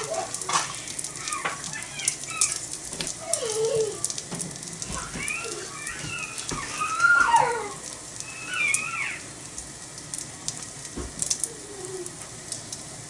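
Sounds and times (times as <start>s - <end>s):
wood fire crackling: 0.0s - 13.0s
high sliding calls: 8.2s - 9.3s.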